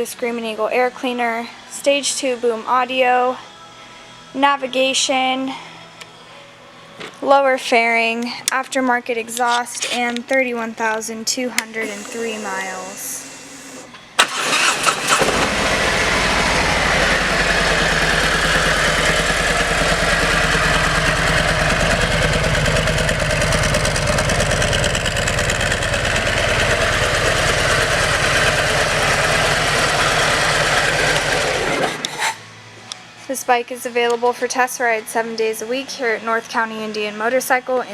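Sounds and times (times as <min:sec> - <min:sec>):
ignition click: 0:11.8 - 0:16.0
motorcycle engine idling: 0:11.8 - 0:32.0
motorcycle engine cranking: 0:11.8 - 0:32.4.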